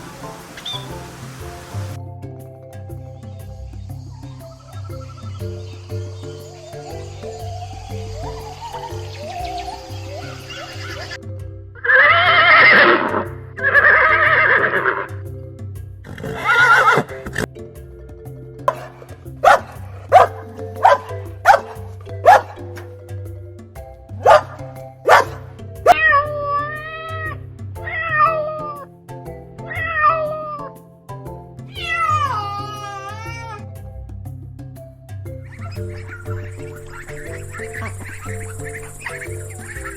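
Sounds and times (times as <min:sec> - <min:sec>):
background music: 0:00.0 - 0:39.9
horse whinnying: 0:11.8 - 0:15.1, 0:31.7 - 0:33.7
cat meowing: 0:25.9 - 0:26.2, 0:29.8 - 0:30.6, 0:31.7 - 0:33.6.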